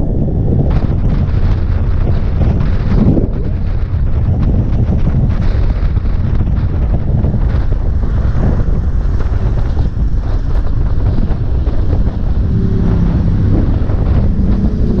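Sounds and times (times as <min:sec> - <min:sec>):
wind buffeting microphone: 0:00.0 - 0:15.0
motorcycle engine: 0:08.8 - 0:15.0.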